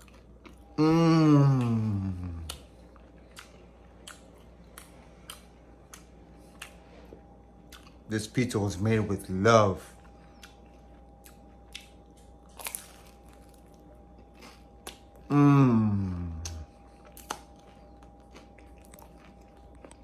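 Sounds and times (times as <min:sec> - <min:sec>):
chewing pizza: 0:00.0 - 0:20.0
hummed vocal sliding down: 0:00.8 - 0:02.5.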